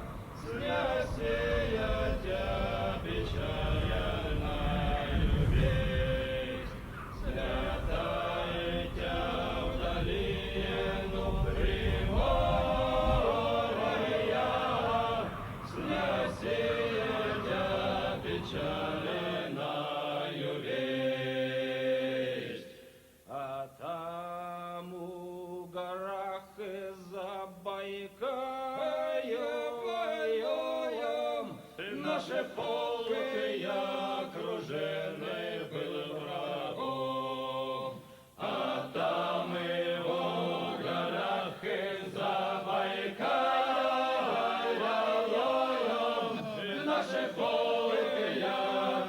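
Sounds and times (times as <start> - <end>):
choir singing held notes: 0.0 - 25.3, 26.6 - 49.0.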